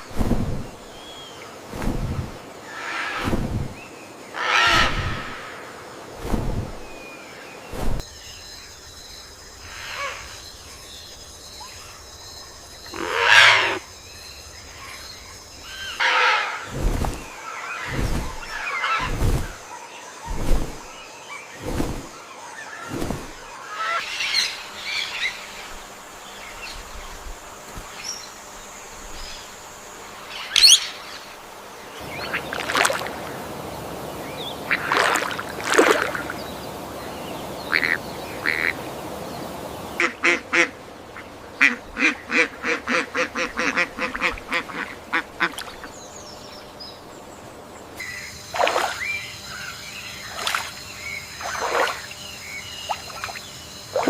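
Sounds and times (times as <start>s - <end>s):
bird calls: 30.2s - 54.0s
rapid quacking calls: 37.7s - 38.8s, 41.6s - 45.6s.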